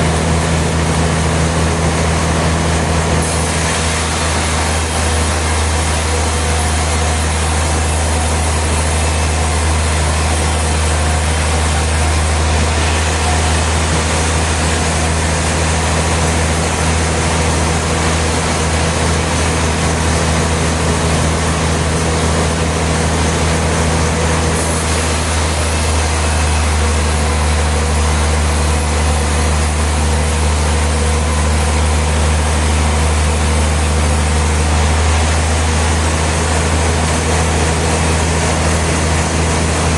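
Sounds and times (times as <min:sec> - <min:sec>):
motor hum: 0:00.0 - 0:39.9
broad hiss: 0:03.2 - 0:17.4.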